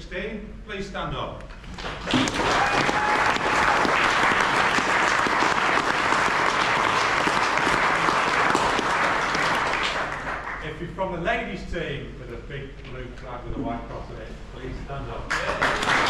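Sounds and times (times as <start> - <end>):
audience applauding: 1.7 - 10.6, 15.3 - 16.0.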